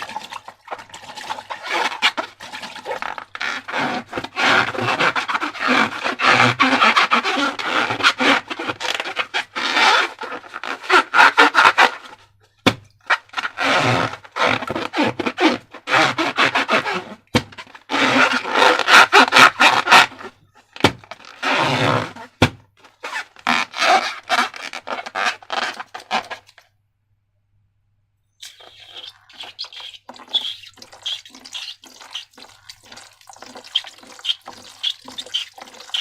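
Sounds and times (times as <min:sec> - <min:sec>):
slime squelching by hand: 0:28.4 - 0:36.0.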